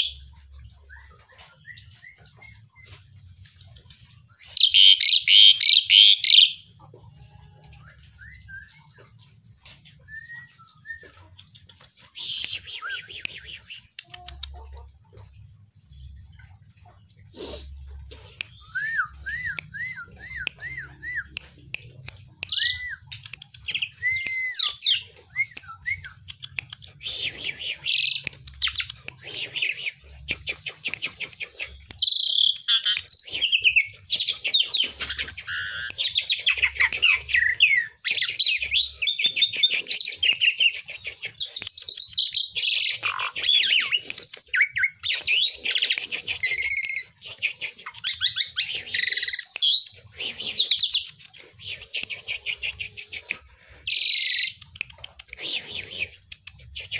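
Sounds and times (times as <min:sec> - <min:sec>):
scratchy chattering birdsong: 0:00.0 - 0:07.2, 0:07.9 - 0:56.9
starling whistling: 0:23.9 - 0:26.2.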